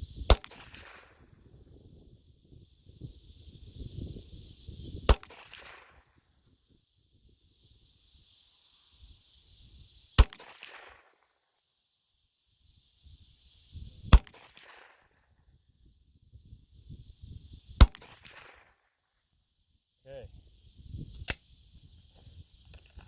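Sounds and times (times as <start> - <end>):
wind rumble on microphone: 0.0 - 5.3, 15.7 - 17.8, 20.1 - 23.0.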